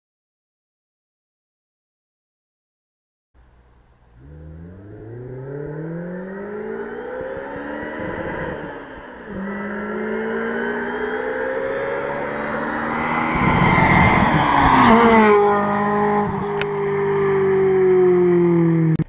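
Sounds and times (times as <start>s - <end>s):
car engine accelerating hard: 3.9s - 19.0s.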